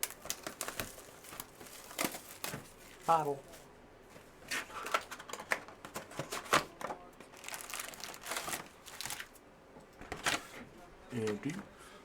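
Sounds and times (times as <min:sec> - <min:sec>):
foil wrapper crinkling and tearing: 0:00.0 - 0:03.4, 0:07.3 - 0:09.4.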